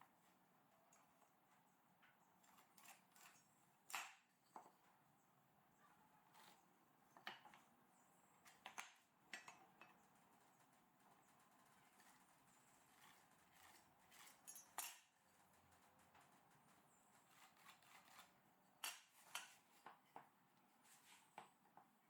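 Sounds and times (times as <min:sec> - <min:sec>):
faint clicks and knocks: 0:08.4 - 0:17.4.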